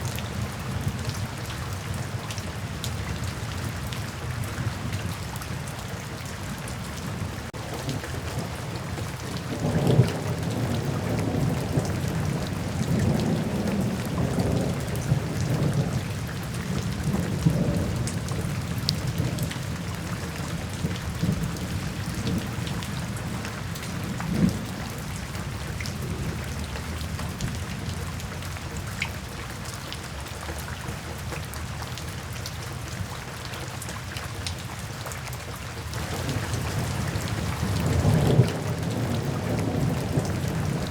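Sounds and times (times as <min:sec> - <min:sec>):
steady rain: 0:00.0 - 0:40.9
low thunder rolling: 0:36.0 - 0:40.9.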